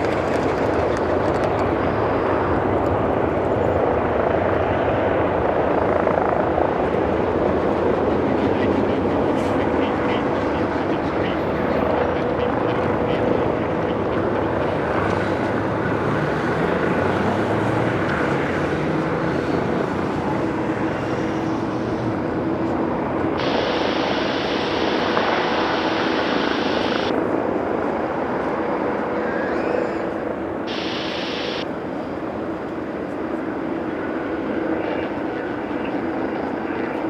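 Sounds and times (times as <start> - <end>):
jet engines roaring: 6.9 - 36.7
high hiss: 23.4 - 27.1, 30.7 - 31.6.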